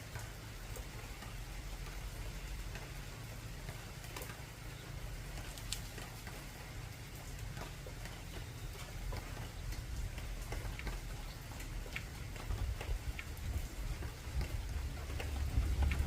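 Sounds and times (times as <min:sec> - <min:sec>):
raindrops ticking on tin roof: 0:00.0 - 0:16.0
low rumble of thunder: 0:12.2 - 0:16.0.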